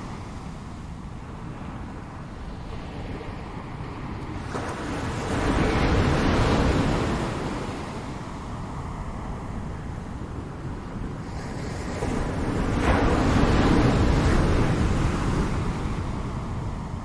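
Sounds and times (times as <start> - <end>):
ocean waves breaking on shore: 0.0 - 17.0.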